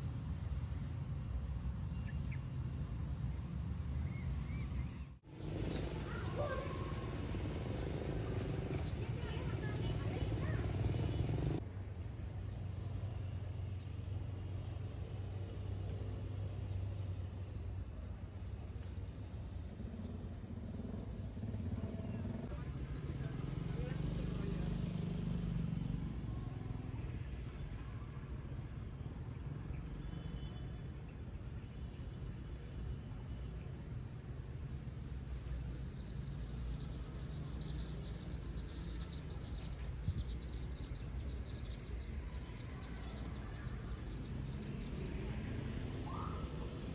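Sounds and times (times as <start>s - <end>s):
motorcycle engine low hum: 0.0s - 46.9s
steady low rumble: 5.1s - 23.3s
louder busy engine noise: 5.2s - 11.6s, 19.0s - 30.8s, 43.2s - 46.9s
faint high bird chirps: 46.0s - 46.8s.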